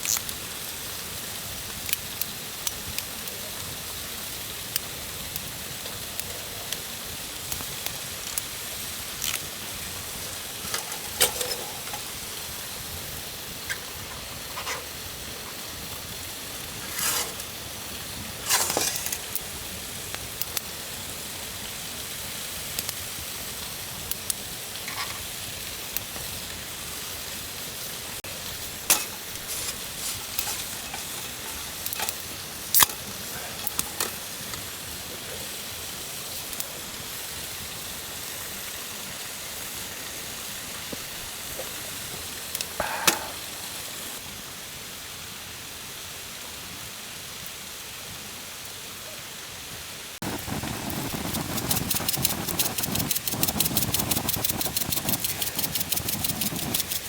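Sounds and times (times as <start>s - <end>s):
food sizzling in a pan: 0.0s - 48.1s, 49.0s - 57.0s
utensils clicking and knocking: 10.5s - 12.2s, 18.5s - 19.4s, 28.5s - 34.2s, 50.2s - 57.0s.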